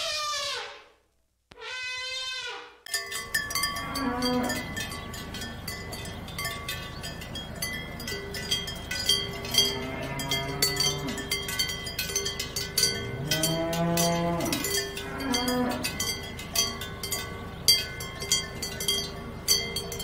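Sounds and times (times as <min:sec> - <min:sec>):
cowbells clanking and ringing: 0:02.9 - 0:20.0
cows mooing: 0:03.3 - 0:05.4, 0:08.8 - 0:16.8.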